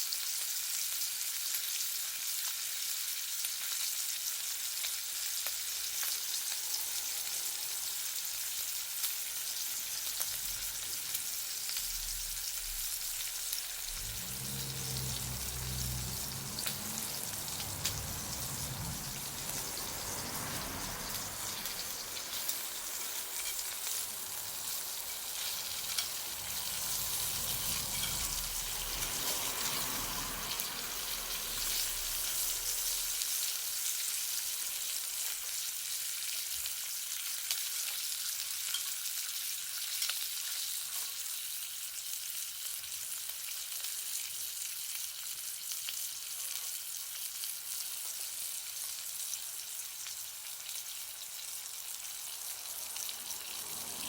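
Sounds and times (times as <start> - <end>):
low rumble: 10.4 - 33.2.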